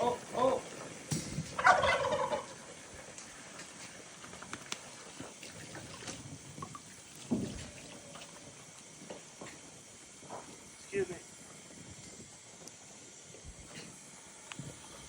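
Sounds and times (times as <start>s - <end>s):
faint clicks and rustle: 0.7s - 15.0s
farm animal call: 1.6s - 3.0s.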